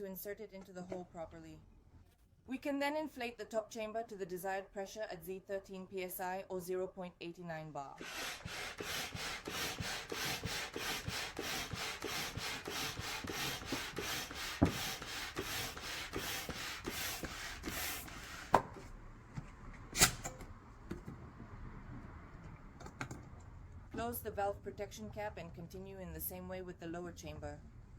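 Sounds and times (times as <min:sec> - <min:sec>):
air pump rhythmic strokes: 0:08.0 - 0:18.6.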